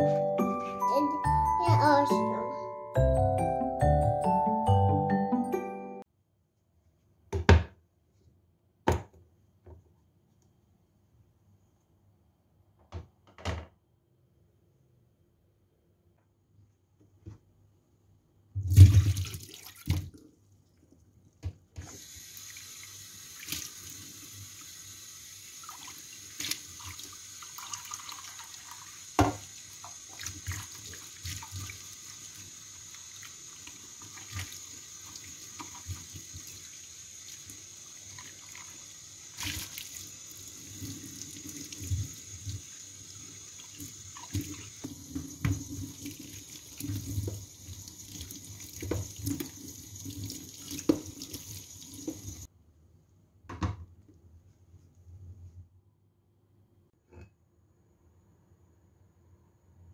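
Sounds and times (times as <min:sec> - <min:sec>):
tap running into sink: 0:29.2 - 0:30.7, 0:44.2 - 0:46.1.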